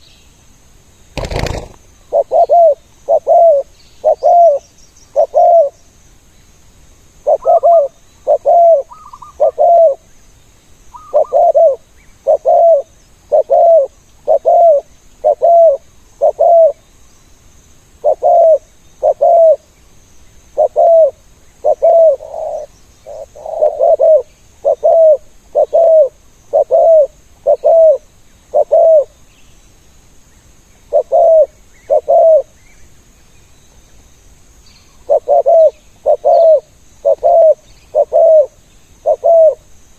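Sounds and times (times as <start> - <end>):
dove cooing: 1.2 - 4.6, 5.2 - 5.8, 7.2 - 10.0, 11.0 - 16.8, 18.0 - 19.6, 20.6 - 29.1, 30.9 - 32.5, 35.1 - 39.6.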